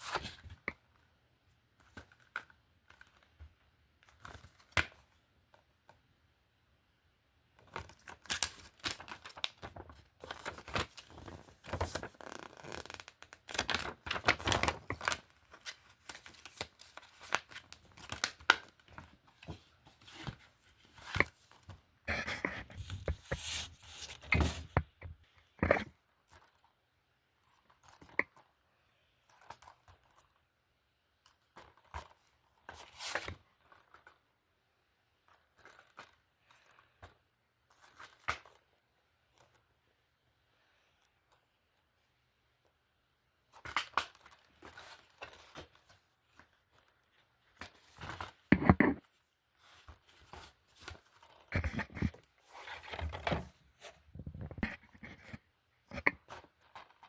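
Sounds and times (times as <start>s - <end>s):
plastic disc cases rustling and clacking: 43.6s - 57.0s.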